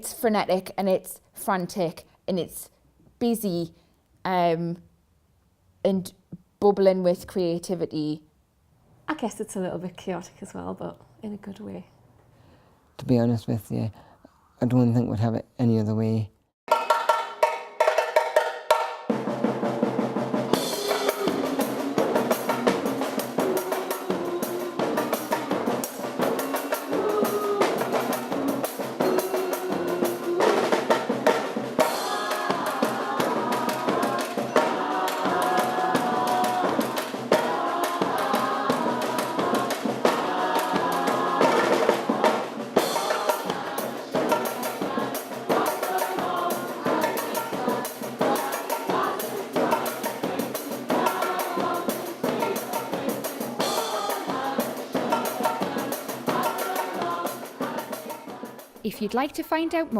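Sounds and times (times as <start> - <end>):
fast busy drumming: 16.7 - 59.9.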